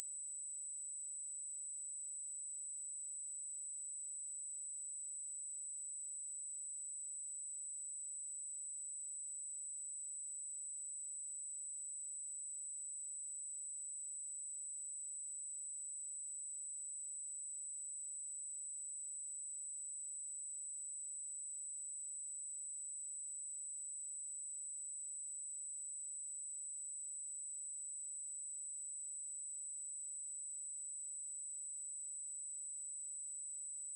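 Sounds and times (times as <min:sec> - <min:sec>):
high-pitched sine test tone: 0:27.6 - 0:33.9.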